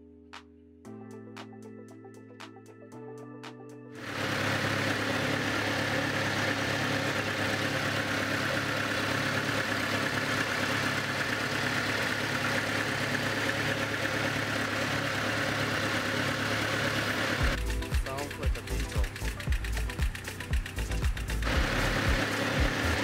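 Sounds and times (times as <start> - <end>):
car engine idling: 4.0 - 23.0.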